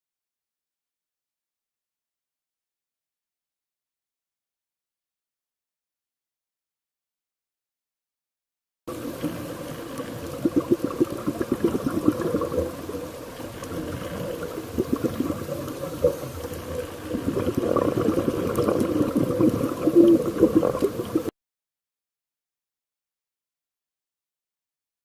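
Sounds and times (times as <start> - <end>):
bubbling gurgling water: 8.9 - 21.3.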